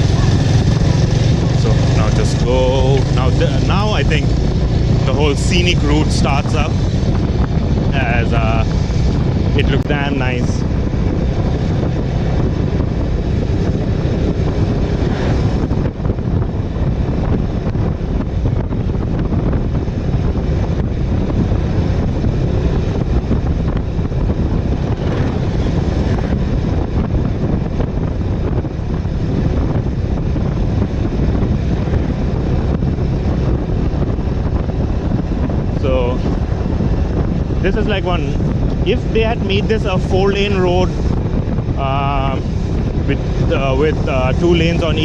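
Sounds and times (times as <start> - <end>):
motorcycle engine running: 0.0 - 45.0
wind buffeting microphone: 0.0 - 45.0.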